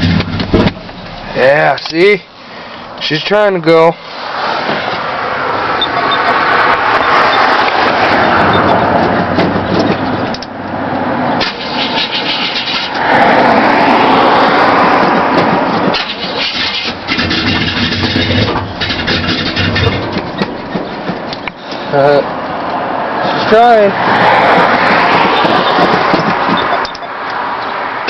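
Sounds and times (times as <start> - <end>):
car engine sputtering on cold start: 11.4 - 13.0, 15.9 - 21.1.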